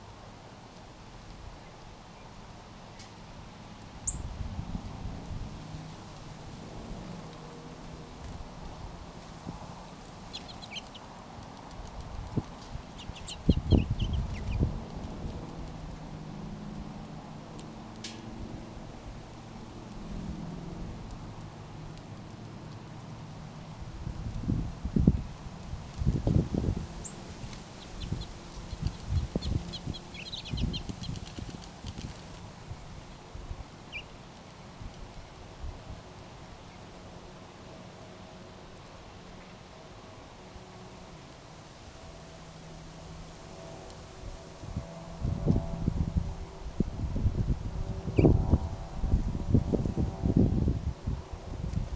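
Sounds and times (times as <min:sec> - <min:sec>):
small birds chirping: 0:04.0 - 0:04.4, 0:09.9 - 0:16.0, 0:26.1 - 0:33.2, 0:33.8 - 0:35.4, 0:48.1 - 0:48.4.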